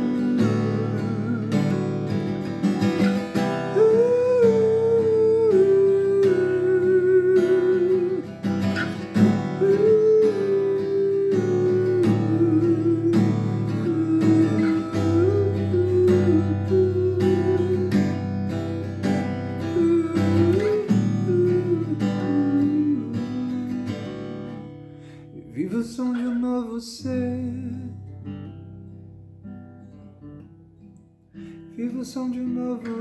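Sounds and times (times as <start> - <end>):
person humming a melody: 0.0 - 1.8, 3.7 - 18.1, 19.7 - 23.7
acoustic guitar strumming: 0.0 - 33.0.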